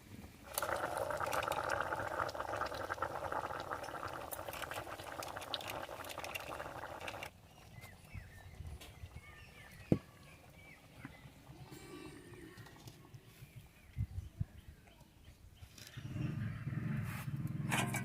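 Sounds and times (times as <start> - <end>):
pot of food boiling: 0.3 - 11.7.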